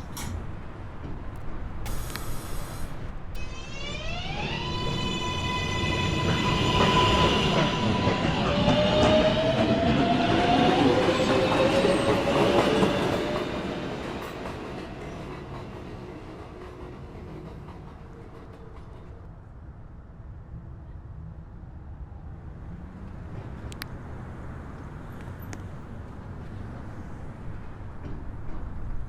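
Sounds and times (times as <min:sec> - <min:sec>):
train wheels rumbling and clattering: 0:00.0 - 0:02.1, 0:02.9 - 0:19.4, 0:22.9 - 0:29.0
electric traction motor whine: 0:03.3 - 0:09.2.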